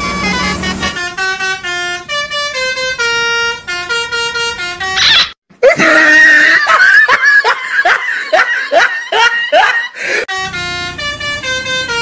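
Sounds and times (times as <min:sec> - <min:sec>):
bus horn playing a tune: 0:00.0 - 0:05.4, 0:10.2 - 0:12.0
high voice with bending pitch: 0:05.0 - 0:06.0.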